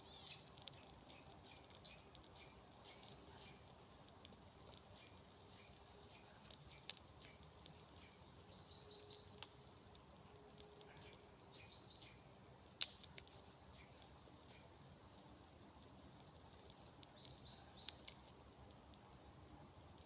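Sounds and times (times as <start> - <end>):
small bird chirping: 0.0 - 19.3.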